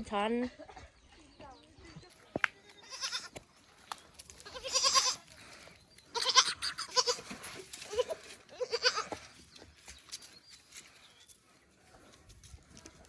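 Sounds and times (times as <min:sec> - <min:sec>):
goats bleating: 0:02.7 - 0:03.4, 0:04.4 - 0:05.3, 0:06.1 - 0:09.2.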